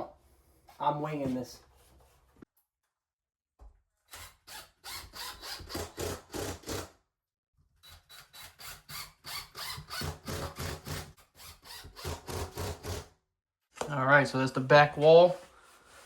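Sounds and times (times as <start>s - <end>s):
hand saw cutting wall board: 4.1s - 7.0s, 7.8s - 13.1s.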